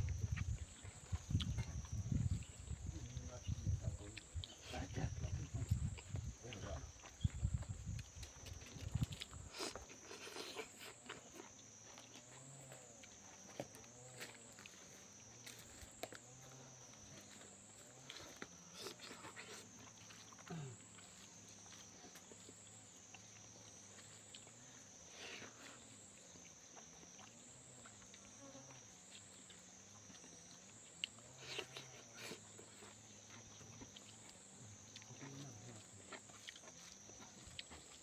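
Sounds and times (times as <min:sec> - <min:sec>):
person eating and chewing: 0:00.0 - 0:13.2, 0:17.9 - 0:24.6, 0:29.1 - 0:38.0.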